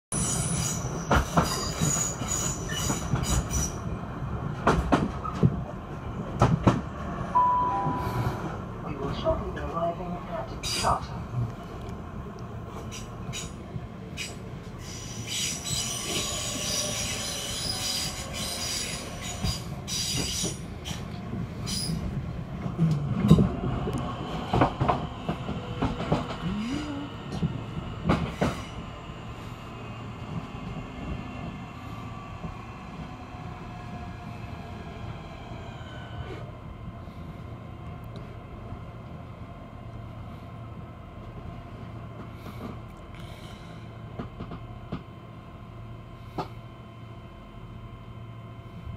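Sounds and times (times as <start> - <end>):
high wheel squeal: 0.1 - 3.8, 14.2 - 21.0
train wheels clacking over rail joints: 0.6 - 3.8, 4.6 - 5.7
braking train whine falling in pitch: 7.4 - 8.4.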